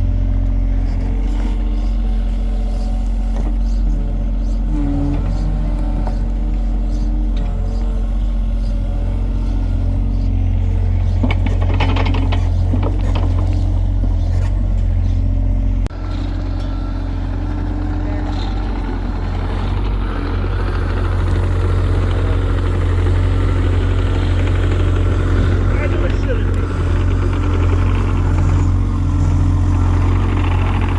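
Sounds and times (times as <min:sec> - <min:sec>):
heavy engine humming: 0:00.0 - 0:30.9
clanking: 0:10.9 - 0:15.2.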